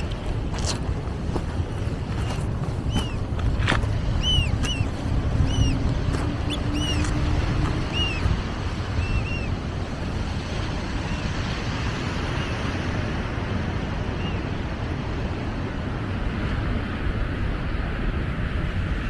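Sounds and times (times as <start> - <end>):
surf at the shore: 0.0 - 19.0
wind rumbling on microphone: 0.0 - 19.0
bird chirping: 2.1 - 8.4.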